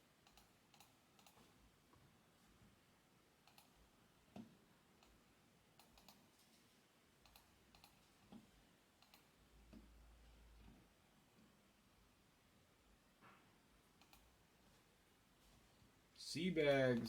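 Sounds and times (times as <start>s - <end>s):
faint clicks: 0.2s - 1.5s, 3.4s - 5.2s, 5.8s - 6.6s, 7.2s - 9.9s, 14.0s - 14.4s.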